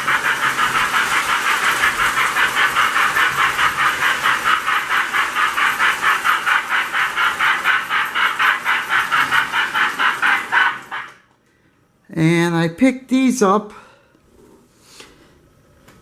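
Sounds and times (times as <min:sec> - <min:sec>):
model steam locomotive chuffing: 0:00.0 - 0:11.2.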